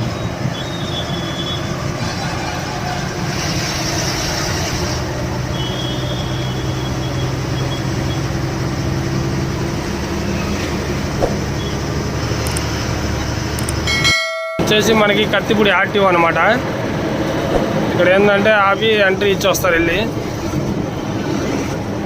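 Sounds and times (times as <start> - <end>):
lorry engine drone: 0.0 - 22.0
road noise: 0.0 - 22.0
click: 13.6 - 13.8.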